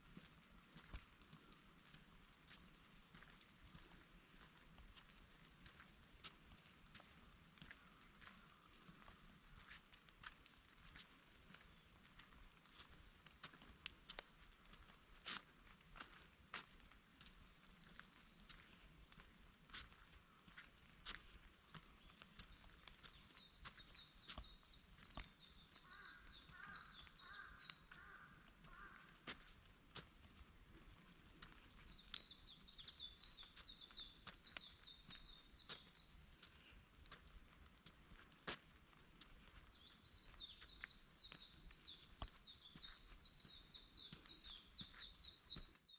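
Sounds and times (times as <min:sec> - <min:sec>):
faint forest ambience: 0:00.0 - 0:45.9
raindrops dripping: 0:00.0 - 0:45.9
songbird singing: 0:00.8 - 0:09.3, 0:10.6 - 0:15.0, 0:21.1 - 0:30.4, 0:31.3 - 0:37.2, 0:39.4 - 0:45.9.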